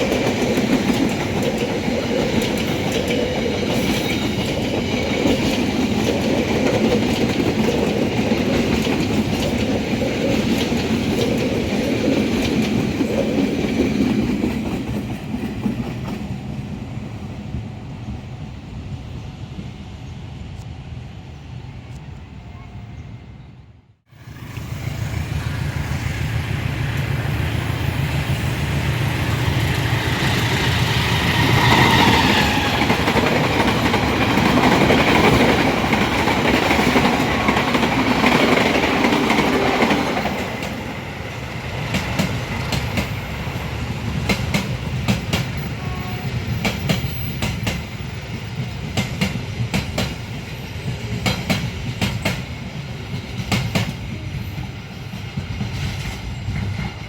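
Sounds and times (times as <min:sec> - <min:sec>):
train rumbling past: 0:00.0 - 0:57.0.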